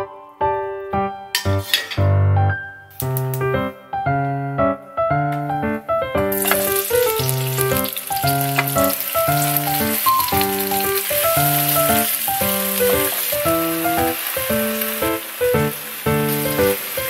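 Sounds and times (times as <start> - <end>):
background piano music: 0.0 - 17.0
kimchi sizzling in hot oil: 6.3 - 17.0.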